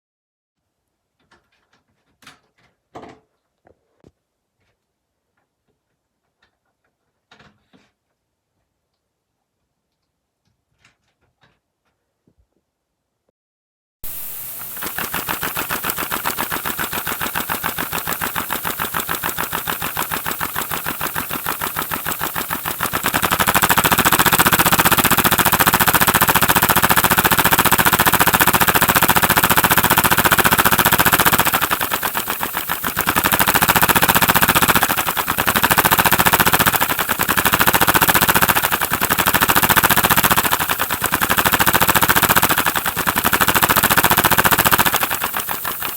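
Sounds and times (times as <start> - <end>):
model engine clattering rattle: 14.2 - 45.9.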